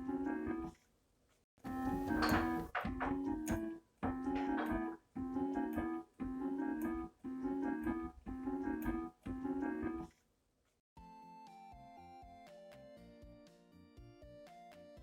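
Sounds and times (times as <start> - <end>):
electronic keyboard piano: 0.0 - 0.7, 1.6 - 10.1.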